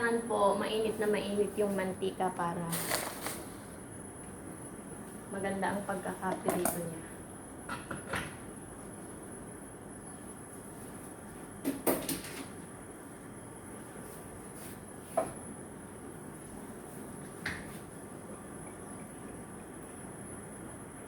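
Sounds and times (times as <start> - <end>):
kitchen knocks and clatters: 7.7 - 8.4, 11.6 - 12.6.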